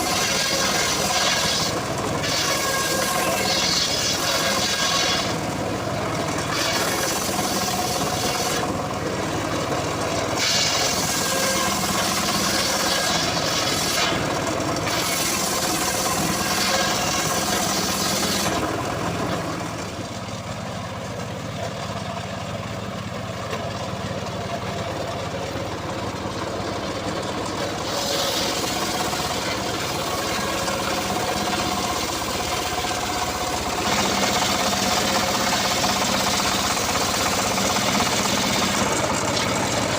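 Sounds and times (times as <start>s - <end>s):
saw blade cutting wood: 0.0s - 5.6s, 6.2s - 8.8s, 10.1s - 19.5s, 27.5s - 39.9s
engine-driven circular saw: 0.0s - 39.9s.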